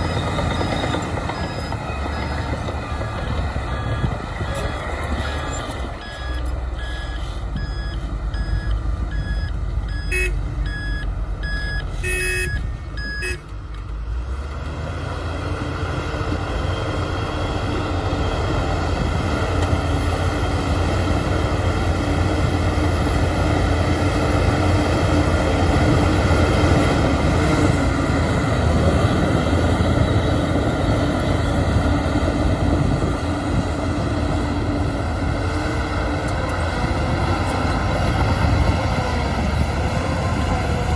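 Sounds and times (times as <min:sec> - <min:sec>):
reversing alarm beeping: 0:00.0 - 0:13.4
bulldozer diesel engine running: 0:00.0 - 0:40.9.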